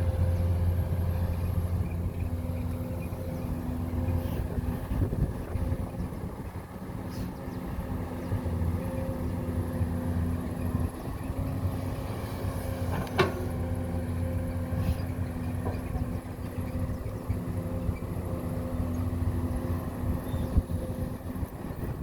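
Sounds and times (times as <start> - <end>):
heavy machine engine running: 0.0 - 22.0
metallic clank: 12.9 - 13.6.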